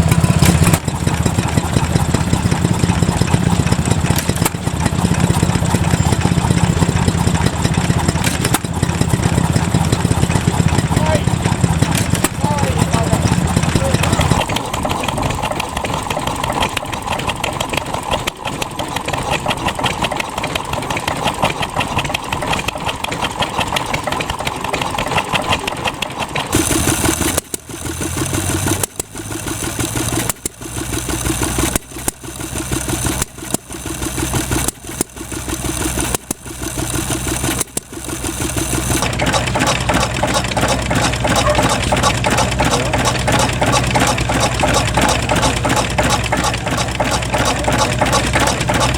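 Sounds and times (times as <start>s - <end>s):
stationary engines running: 0.0s - 48.9s.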